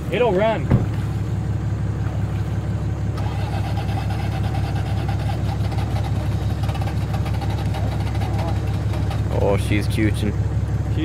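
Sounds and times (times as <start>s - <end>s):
engine cranking on starter: 3.0s - 10.3s.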